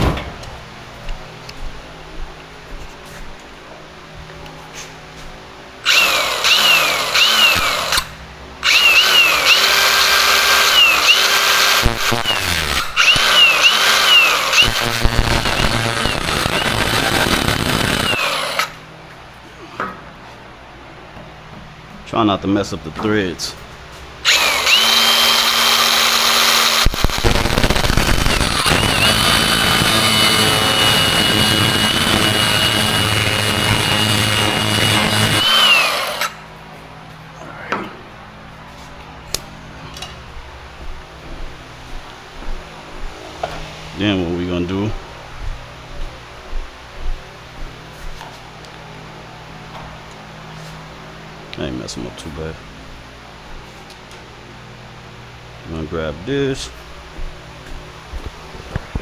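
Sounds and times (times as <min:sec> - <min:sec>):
power tool cutting metal: 0:05.9 - 0:18.8, 0:24.2 - 0:36.4.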